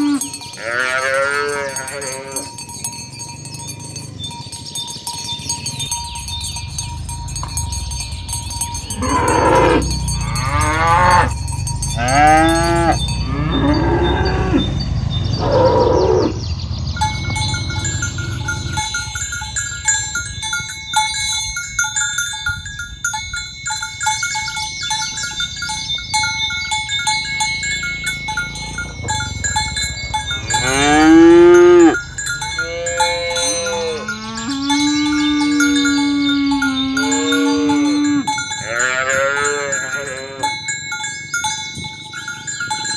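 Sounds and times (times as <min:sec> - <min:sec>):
cattle mooing: 0:00.0 - 0:02.5, 0:08.8 - 0:16.5, 0:30.4 - 0:32.0, 0:32.6 - 0:40.6
jangling bells: 0:00.0 - 0:42.9.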